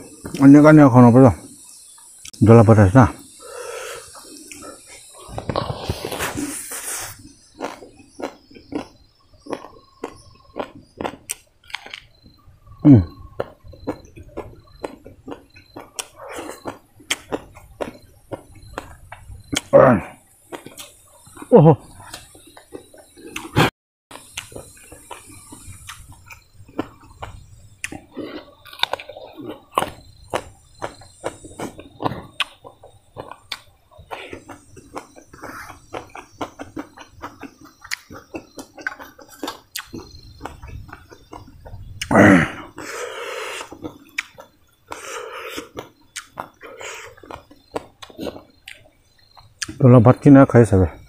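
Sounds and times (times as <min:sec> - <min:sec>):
chewing crispy food: 0:04.1 - 0:12.4, 0:13.0 - 0:49.8
wet mouth clicks and smacks: 0:13.4 - 0:19.7, 0:22.1 - 0:28.0, 0:33.2 - 0:33.7, 0:34.4 - 0:42.1, 0:43.6 - 0:46.6.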